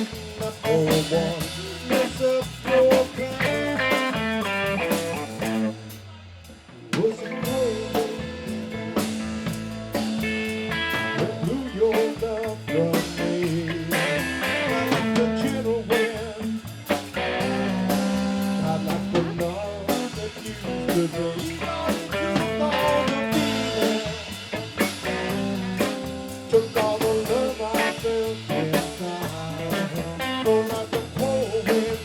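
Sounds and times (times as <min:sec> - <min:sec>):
bass guitar: 0:00.0 - 0:32.0
drum kit steady beat: 0:00.0 - 0:32.0
electric guitar lead: 0:03.3 - 0:05.8, 0:07.2 - 0:11.8, 0:13.4 - 0:16.1, 0:17.1 - 0:19.4, 0:21.6 - 0:26.5.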